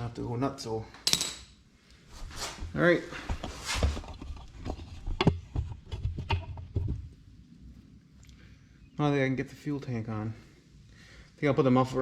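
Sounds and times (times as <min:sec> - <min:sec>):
metal tools and parts clicking: 0:01.0 - 0:01.6.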